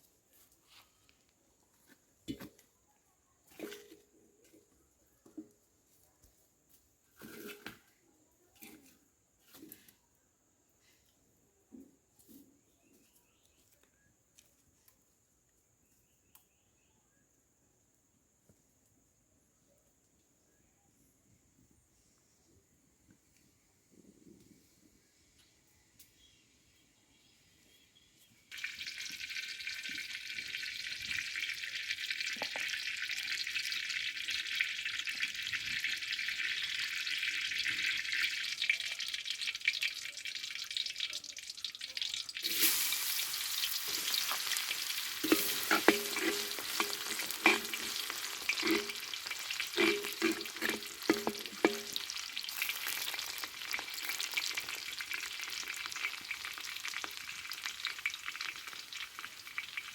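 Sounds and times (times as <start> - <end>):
utensil scraping in pan: 7.2 - 7.9, 42.4 - 54.8
food sizzling in hot oil: 28.5 - 59.9.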